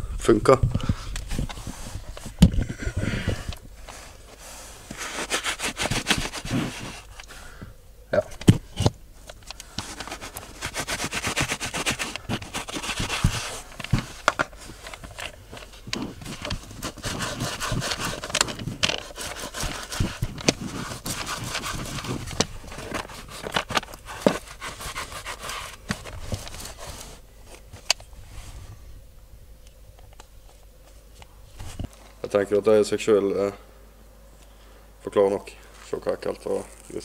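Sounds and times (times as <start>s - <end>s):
lint roller scraping floor mat: 3.9s - 7.1s, 9.7s - 27.6s.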